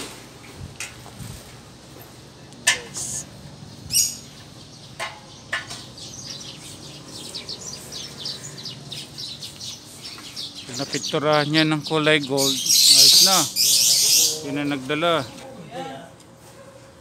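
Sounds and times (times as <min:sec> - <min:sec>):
small birds chirping: 0:02.4 - 0:15.5.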